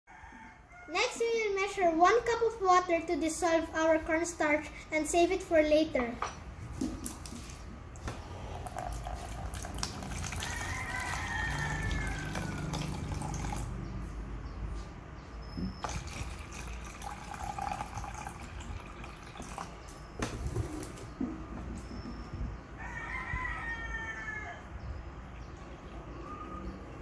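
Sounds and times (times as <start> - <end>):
water pouring into a cup: 8.2 - 13.7, 15.8 - 20.0.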